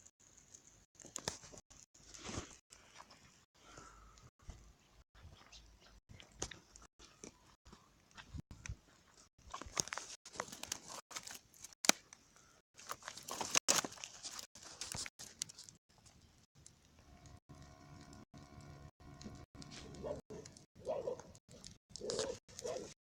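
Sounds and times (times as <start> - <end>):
bonfire crackling and popping: 12.8 - 22.9.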